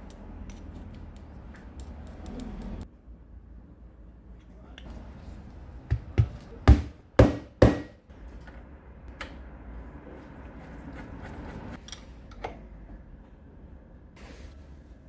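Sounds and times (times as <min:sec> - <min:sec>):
sharp knocks: 0:05.9 - 0:08.0.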